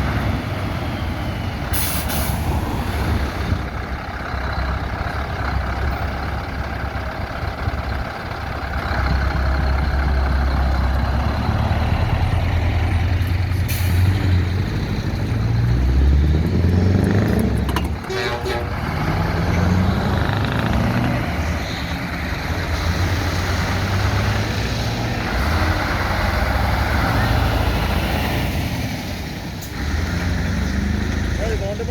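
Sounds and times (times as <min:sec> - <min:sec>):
truck diesel engines revving: 0:00.0 - 0:31.9
air hiss: 0:01.7 - 0:02.5.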